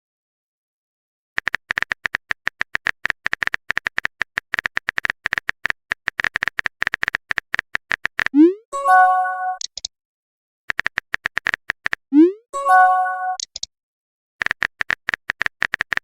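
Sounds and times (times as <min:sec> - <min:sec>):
keyboard typing clicks: 0:01.4 - 0:08.5, 0:09.5 - 0:09.9, 0:10.7 - 0:12.0, 0:13.3 - 0:13.7, 0:14.4 - 0:16.0
notification chime: 0:08.4 - 0:09.6, 0:12.2 - 0:13.4.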